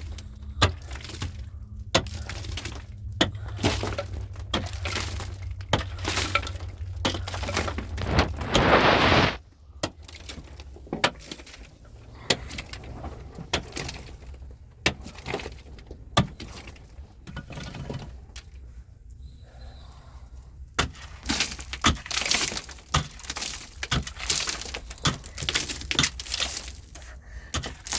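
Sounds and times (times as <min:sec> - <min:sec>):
hard objects knocking and cracking: 0:00.0 - 0:09.2, 0:09.8 - 0:18.5, 0:20.7 - 0:27.9
dense scraping rush: 0:01.4 - 0:09.5.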